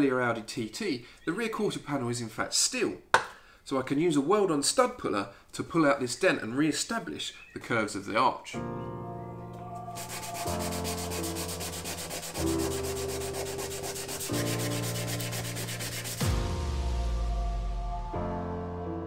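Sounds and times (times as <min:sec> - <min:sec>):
piano background music: 0:08.5 - 0:19.0
power sander rasping on metal: 0:10.0 - 0:16.3.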